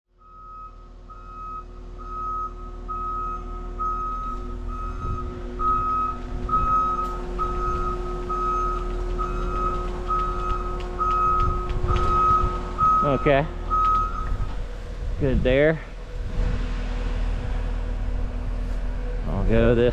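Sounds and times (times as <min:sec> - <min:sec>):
engine hum: 0:00.1 - 0:19.9
reversing alarm beeping: 0:00.2 - 0:14.8.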